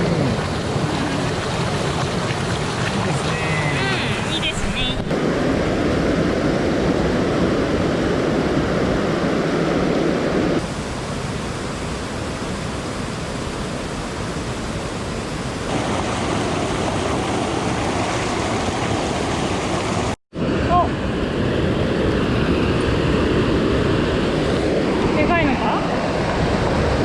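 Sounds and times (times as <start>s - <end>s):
stream rushing over rocks: 0.0s - 5.6s, 10.2s - 20.2s.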